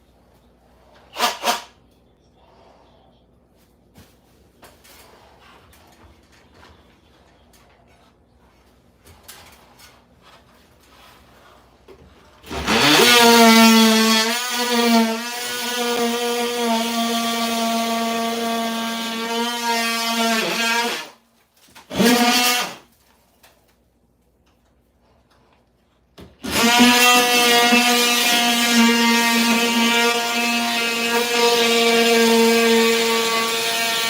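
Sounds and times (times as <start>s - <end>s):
power tool motor whining: 12.5s - 21.2s, 21.9s - 22.8s, 26.4s - 34.0s.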